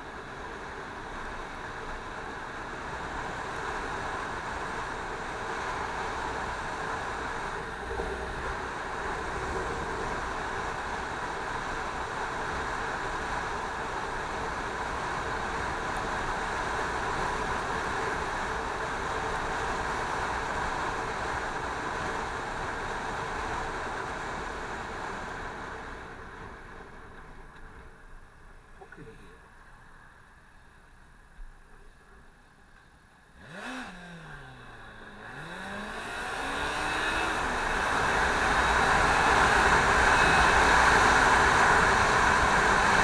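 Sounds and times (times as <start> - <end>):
motorcycle engine: 33.2 - 43.0.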